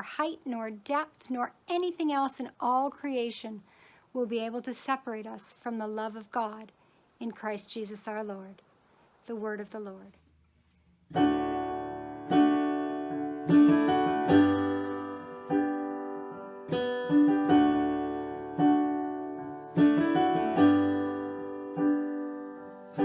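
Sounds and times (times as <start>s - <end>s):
piano playing slow chords: 11.1s - 23.0s.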